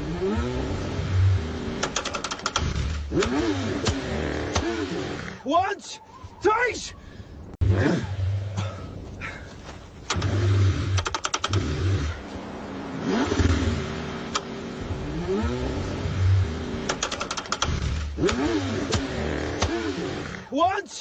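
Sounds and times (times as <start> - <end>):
car engine cranking: 0.0 - 5.5, 10.0 - 20.5
rapid clicking: 1.8 - 4.0, 10.1 - 11.7, 16.8 - 19.8
rising and falling whines: 10.1 - 20.4.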